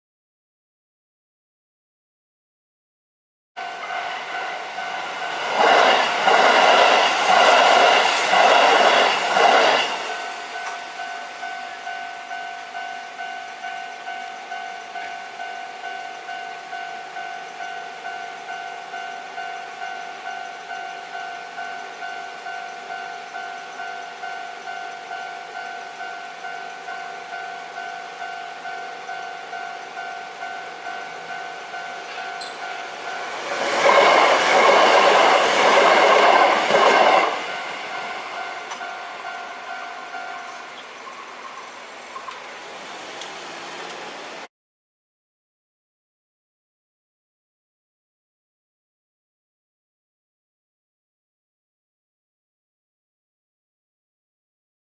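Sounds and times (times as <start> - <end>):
level crossing warning alarm: 3.6 - 44.0
train wheels clattering over rails: 3.8 - 11.1, 30.8 - 44.5.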